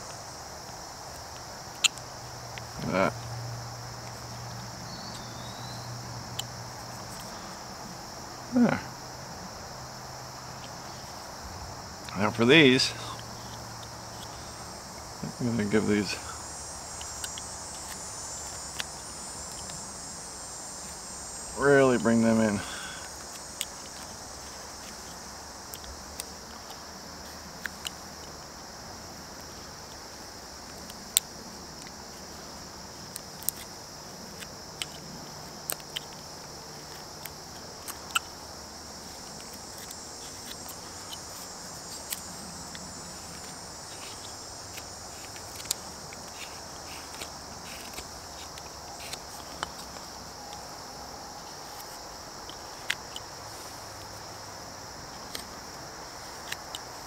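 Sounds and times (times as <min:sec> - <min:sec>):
crickets chirring: 0:00.0 - 0:57.0
knife cutting wood: 0:39.1 - 0:50.1.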